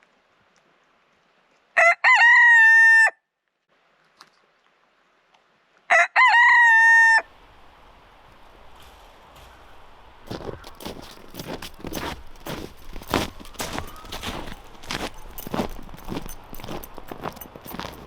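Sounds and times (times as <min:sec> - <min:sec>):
rooster crowing: 0:01.8 - 0:03.2, 0:05.9 - 0:07.5.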